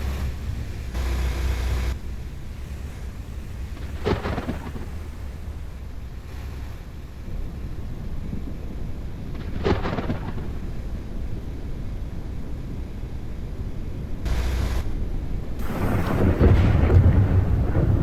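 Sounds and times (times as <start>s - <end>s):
thunder rumbling: 0.0s - 13.3s, 14.3s - 18.0s
sharp thunder crack: 3.6s - 5.9s, 15.6s - 18.0s
burst of hiss: 15.6s - 16.8s.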